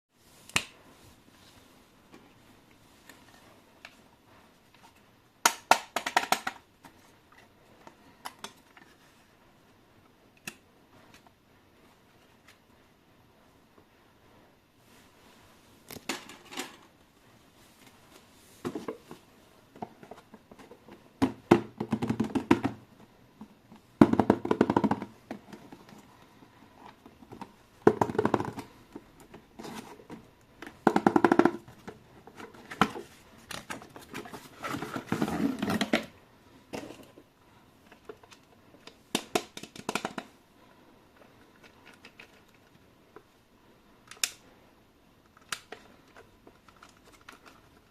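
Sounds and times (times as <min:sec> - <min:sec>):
cardboard and plastic rustling: 0:17.5 - 0:38.8.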